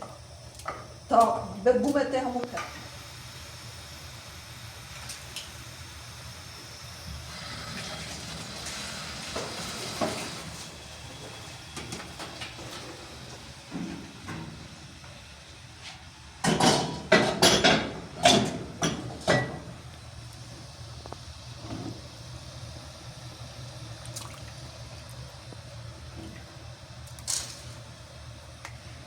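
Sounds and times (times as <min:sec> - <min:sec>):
low steady hum: 0:12.7 - 0:29.0.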